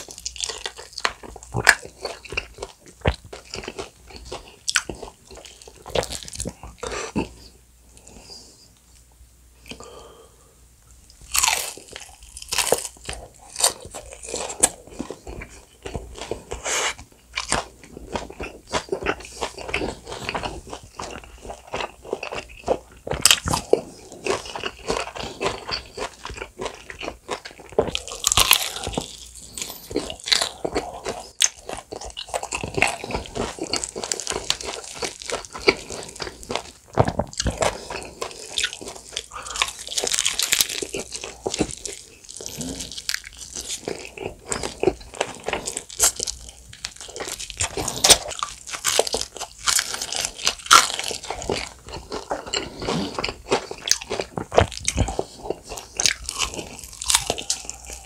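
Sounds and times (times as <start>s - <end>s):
crunching of fried chicken: 0.0s - 8.2s, 11.2s - 58.0s
chewing: 0.0s - 8.4s, 11.1s - 58.0s.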